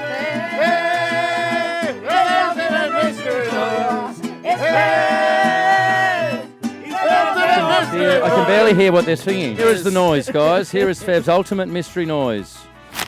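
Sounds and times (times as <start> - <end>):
person singing: 0.0 - 10.7
plucked strings: 1.4 - 10.4.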